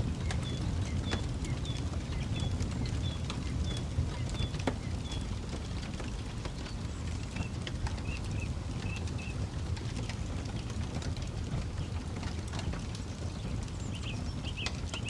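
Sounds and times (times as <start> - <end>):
campfire crackling and popping: 0.0 - 15.0
steady low rumble: 0.0 - 15.0
bird chirping: 13.8 - 15.0.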